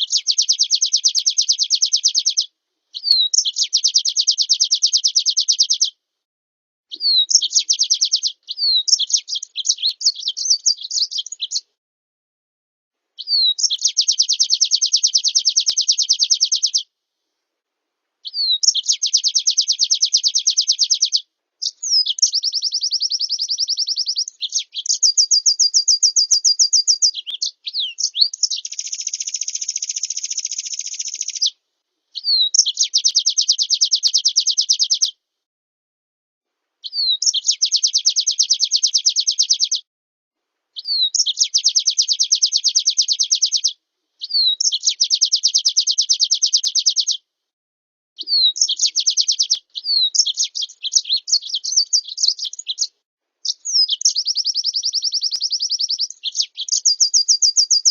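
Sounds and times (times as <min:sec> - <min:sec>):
songbird trilling: 0:00.0 - 0:05.9, 0:06.9 - 0:11.7, 0:13.2 - 0:16.9, 0:18.2 - 0:31.6, 0:32.2 - 0:35.2, 0:36.8 - 0:39.8, 0:40.8 - 0:47.2, 0:48.2 - 0:57.9.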